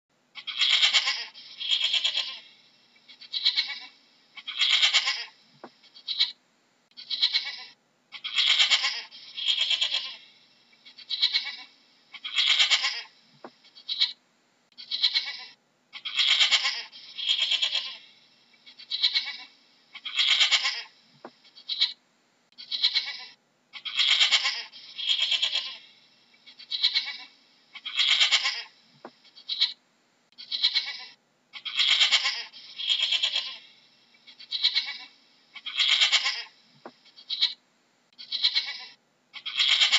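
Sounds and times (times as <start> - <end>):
goat bleating: 0.4 - 2.5, 3.1 - 5.3, 7.0 - 10.3, 10.9 - 13.1, 13.7 - 14.2, 14.8 - 18.1, 18.7 - 20.9, 21.5 - 22.0, 22.6 - 25.9, 26.5 - 28.7, 29.3 - 29.8, 30.4 - 36.5, 37.1 - 37.6, 38.2 - 39.9.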